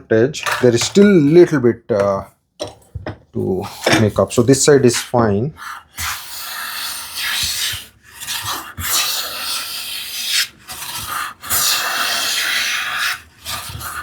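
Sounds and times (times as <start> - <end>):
hand plane rasping wood: 4.8 - 14.0.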